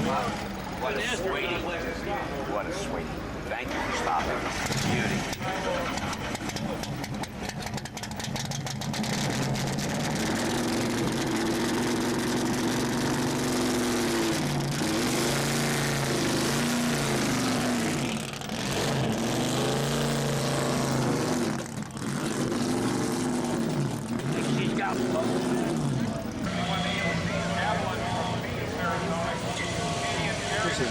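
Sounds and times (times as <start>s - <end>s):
car engine revving: 0.0s - 30.9s.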